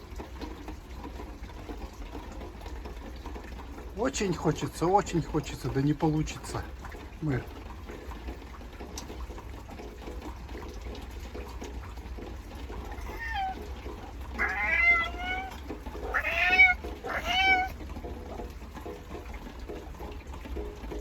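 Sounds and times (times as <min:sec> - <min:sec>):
cat meowing: 0:12.8 - 0:17.8.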